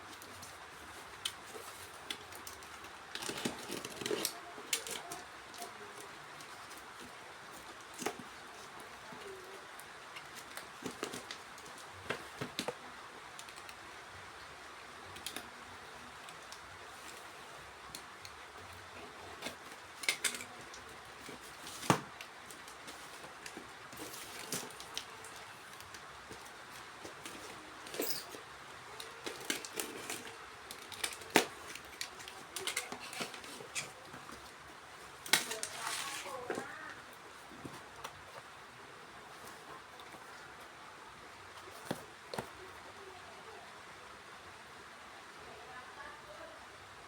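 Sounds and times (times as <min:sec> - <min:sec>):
packaging rustling: 0:00.0 - 0:12.8, 0:18.6 - 0:38.6
faint steady hiss: 0:00.0 - 0:47.0.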